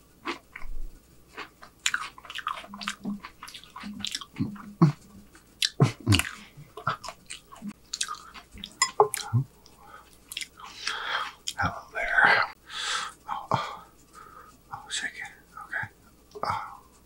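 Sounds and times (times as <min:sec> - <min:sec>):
wet chewing and lip smacking: 0:01.3 - 0:11.7
closed-mouth hums: 0:02.5 - 0:12.6.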